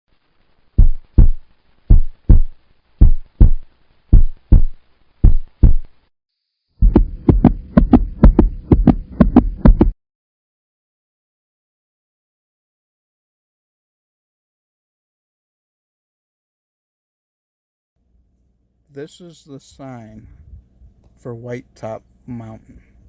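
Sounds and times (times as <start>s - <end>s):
steady hum: 0.3s - 6.0s, 6.8s - 9.9s
heartbeat thumps: 0.8s - 5.9s, 6.8s - 10.0s.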